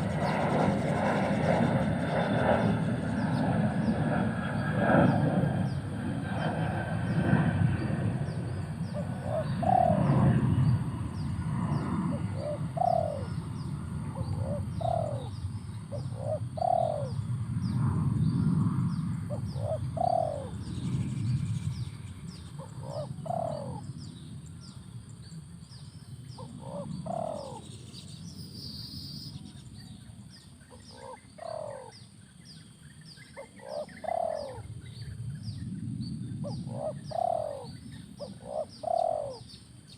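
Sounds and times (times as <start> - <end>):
dove cooing: 0.0 - 17.3, 19.3 - 20.7, 22.6 - 24.0, 26.4 - 27.7, 30.7 - 32.0, 33.4 - 34.9, 36.4 - 39.9.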